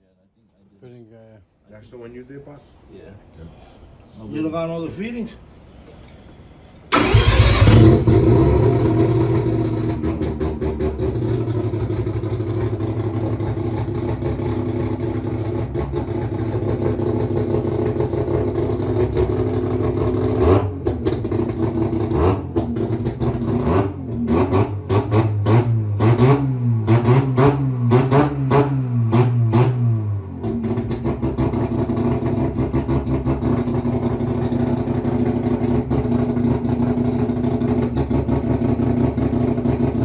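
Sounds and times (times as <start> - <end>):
rotary engine starting and idling: 6.9 - 29.8, 30.4 - 40.0
engine throttle blips: 6.9 - 36.8.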